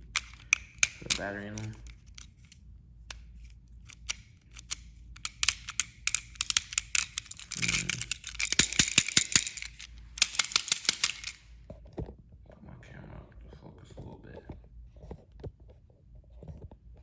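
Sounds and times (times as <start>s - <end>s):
plastic toy clicks and rattles: 0.0s - 11.4s.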